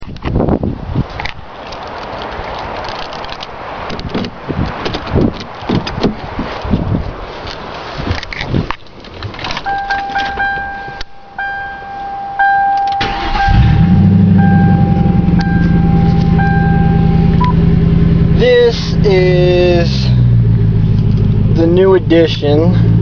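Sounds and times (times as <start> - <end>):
car engine starting and running: 9.3 - 23.0
keys clicking: 9.4 - 11.9, 12.6 - 13.0
car warning chime: 9.6 - 17.6.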